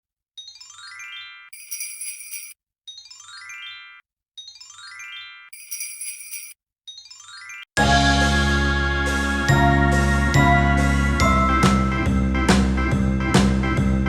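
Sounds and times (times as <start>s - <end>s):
tinkling bell-like chime run: 0.4s - 7.7s, 9.6s - 11.9s.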